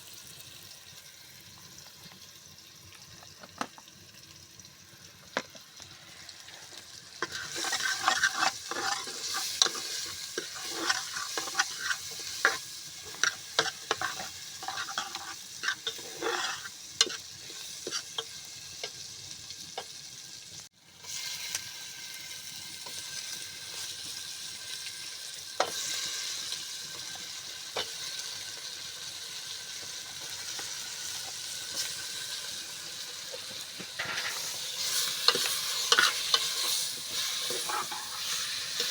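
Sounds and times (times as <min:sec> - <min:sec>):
food sizzling in oil: 0:00.0 - 0:38.9
spoon scraping and knocking pot: 0:07.2 - 0:19.0, 0:33.8 - 0:38.9.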